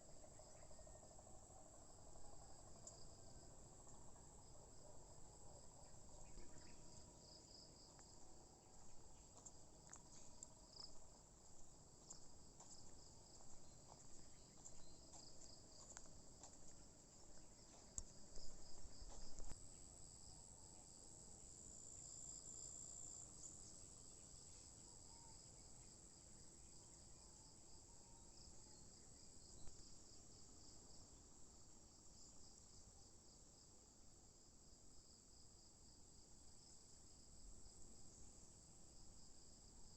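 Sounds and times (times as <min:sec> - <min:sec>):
insects chirring: 0:00.2 - 0:30.7.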